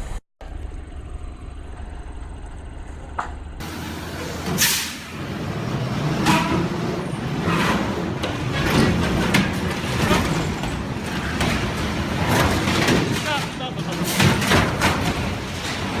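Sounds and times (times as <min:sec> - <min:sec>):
road vehicle noise: 0:00.0 - 0:16.0
sudden knocks and crashes: 0:07.8 - 0:16.0.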